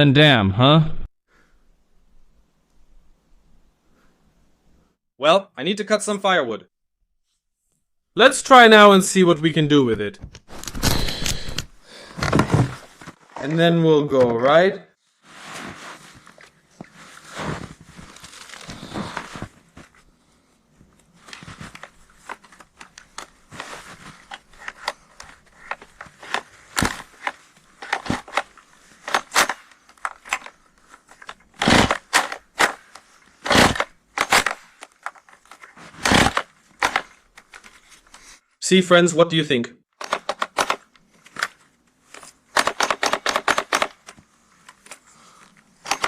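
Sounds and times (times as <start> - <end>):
crunching in snow: 16.9 - 19.8
chainsaw starter cord pulls: 31.6 - 32.8, 33.4 - 34.6, 36.0 - 37.0, 42.6 - 44.0.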